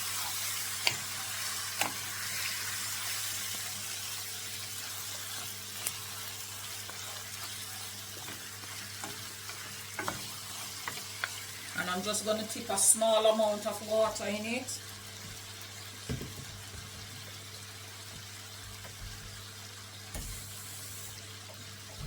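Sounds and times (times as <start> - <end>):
food sizzling in hot oil: 0.0 - 22.0
utensil clicking while stirring: 0.7 - 1.2, 6.7 - 11.5.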